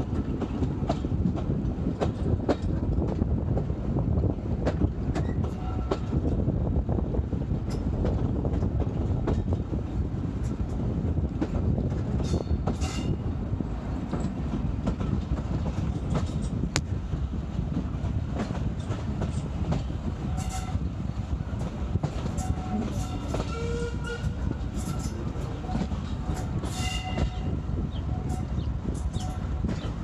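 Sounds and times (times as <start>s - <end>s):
wheels clicking over rail joints: 0.0s - 6.5s, 7.5s - 30.0s
steam train rumbling: 0.0s - 30.0s.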